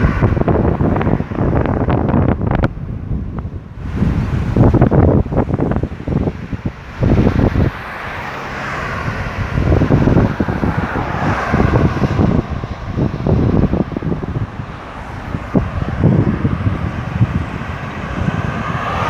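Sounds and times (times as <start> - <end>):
highway traffic: 0.0 - 19.0
wind buffeting microphone: 0.0 - 19.0
vehicle passing: 3.8 - 19.0.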